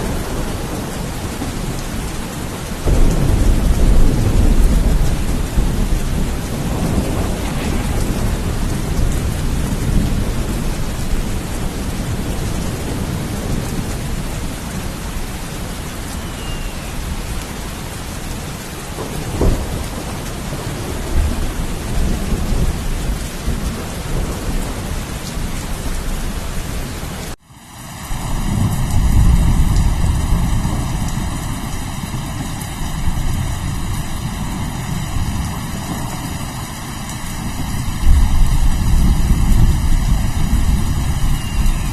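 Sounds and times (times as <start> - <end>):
low rolling thunder: 0.0 - 18.2, 18.8 - 26.9, 28.1 - 41.9
heavy rain: 0.0 - 41.9
sharp thunder crack: 2.8 - 10.9.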